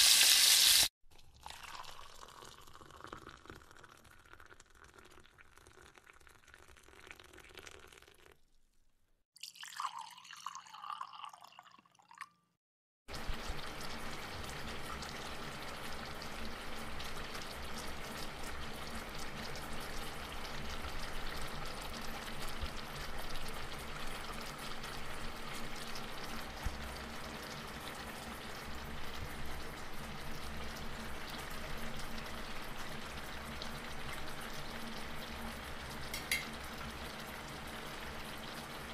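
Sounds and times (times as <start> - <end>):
chicken sizzling in a pan: 0.0 - 0.9, 13.1 - 38.9.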